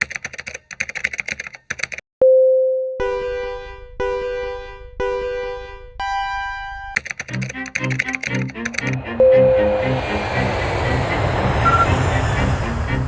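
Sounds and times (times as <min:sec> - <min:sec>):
rapid clicking: 0:00.0 - 0:02.0, 0:07.0 - 0:09.1
electronic beeps: 0:09.2 - 0:10.0, 0:11.6 - 0:12.0.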